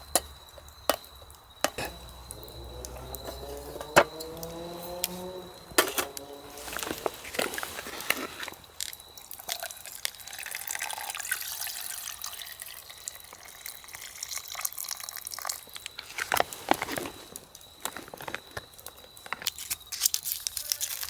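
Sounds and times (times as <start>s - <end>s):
water pouring and dripping: 6.6s - 16.6s.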